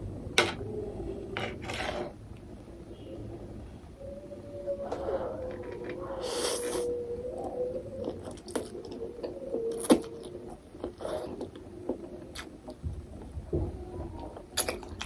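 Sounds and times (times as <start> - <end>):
faint wavering hum: 0.0 - 15.0
person chewing noodles: 8.0 - 12.8.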